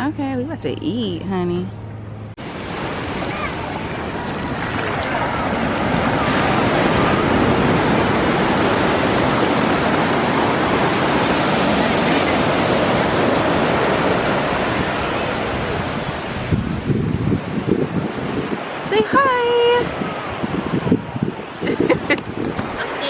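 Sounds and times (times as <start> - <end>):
steady rushing noise: 1.8 - 19.0.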